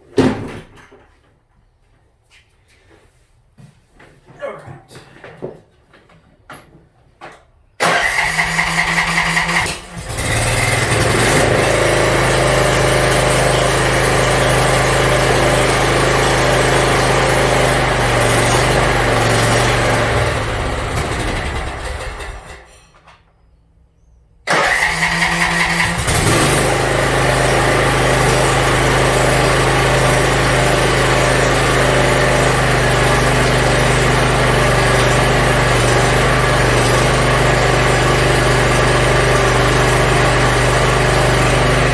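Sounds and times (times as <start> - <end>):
electric starter cranking: 7.8 - 22.7, 24.5 - 41.9
mower engine running: 7.8 - 22.7, 24.5 - 41.9.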